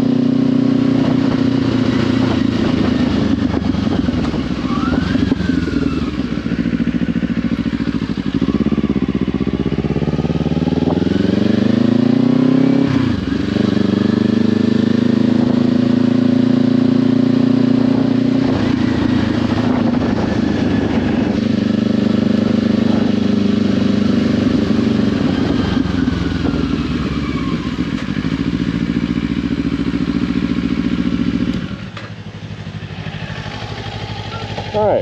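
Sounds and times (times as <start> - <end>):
motorcycle engine while riding: 0.0 - 35.0.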